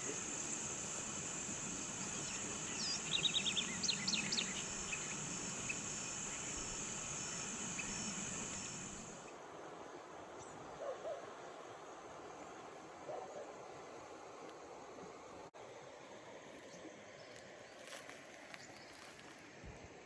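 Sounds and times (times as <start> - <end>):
high-pitched insect drone: 0.0 - 9.3
bird chirping: 2.0 - 8.8.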